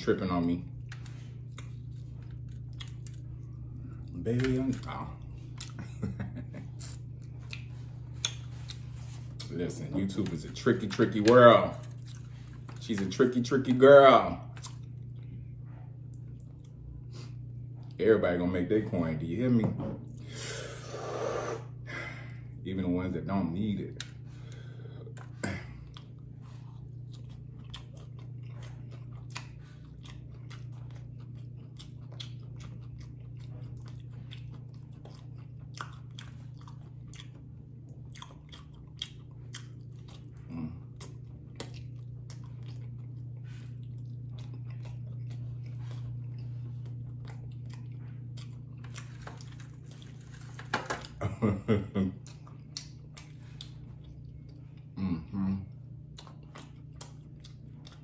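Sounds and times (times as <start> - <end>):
steady low hum: 0.0 - 58.0
crunching fried chicken: 23.6 - 55.0.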